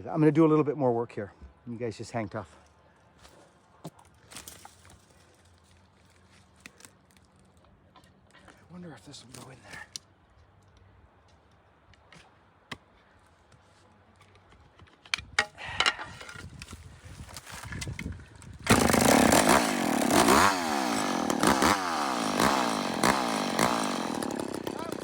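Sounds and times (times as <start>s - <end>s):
chainsaw revving: 18.7s - 25.0s.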